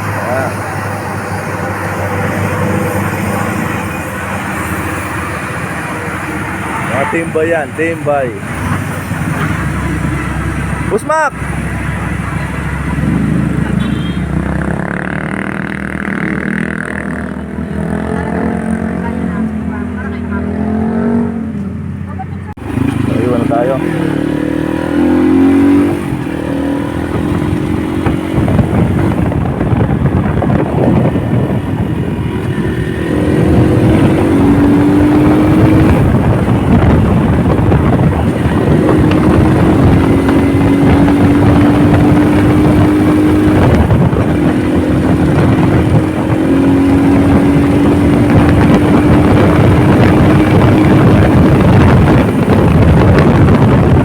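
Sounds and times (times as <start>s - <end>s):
motorcycle engine running: 0.0s - 20.5s, 21.5s - 54.0s
wind on microphone: 22.6s - 54.0s.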